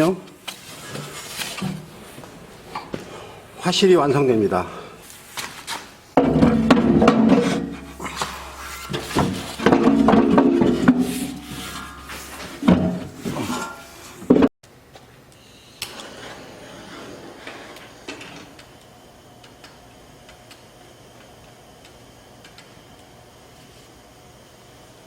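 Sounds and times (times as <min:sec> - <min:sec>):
loud ringing knocks: 0:06.2 - 0:13.2
metal stove parts clanking: 0:06.2 - 0:14.0.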